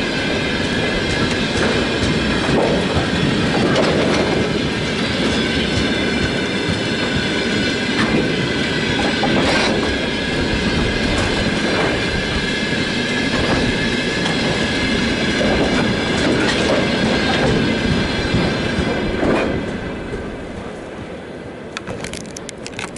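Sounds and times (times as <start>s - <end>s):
train wheels clacking on rail joints: 0.0s - 20.4s, 21.7s - 22.9s
train rumble: 0.0s - 22.9s.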